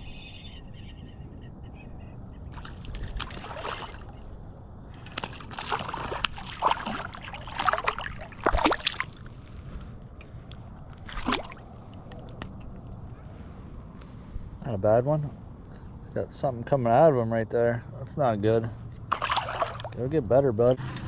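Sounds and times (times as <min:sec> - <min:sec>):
fish splashing in water: 0:02.6 - 0:04.2, 0:05.0 - 0:09.4, 0:11.0 - 0:12.6, 0:19.1 - 0:20.0.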